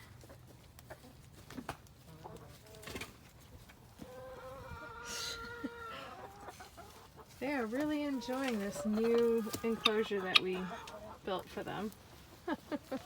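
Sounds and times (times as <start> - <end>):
chickens clucking: 0.0 - 13.0
chicken long drawn-out call: 4.0 - 7.2.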